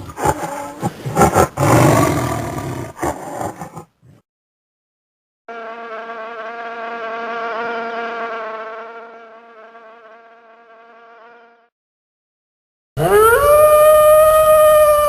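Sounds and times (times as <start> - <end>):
flying insect buzzing: 5.5 - 11.7.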